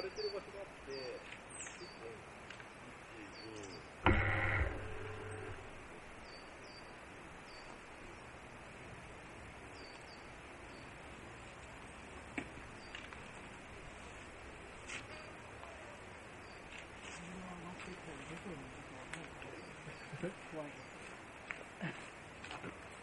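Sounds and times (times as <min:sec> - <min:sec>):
steady hiss: 0:00.0 - 0:23.0
loud sudden tonal noise: 0:04.0 - 0:05.9.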